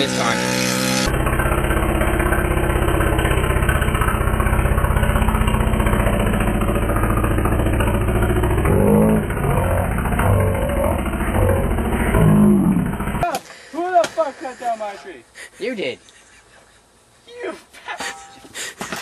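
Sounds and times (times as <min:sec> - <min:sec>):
engine running: 0:00.0 - 0:13.3.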